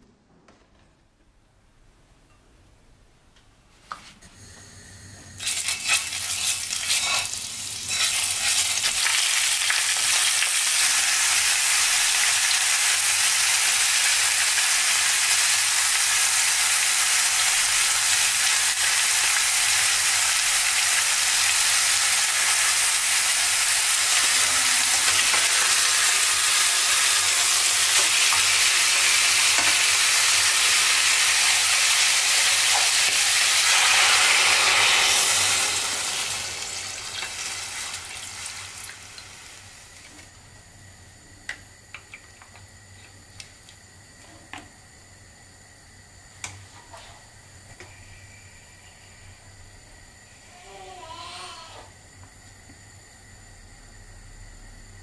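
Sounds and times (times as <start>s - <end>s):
ribs sizzling in hot oil: 5.4s - 40.0s.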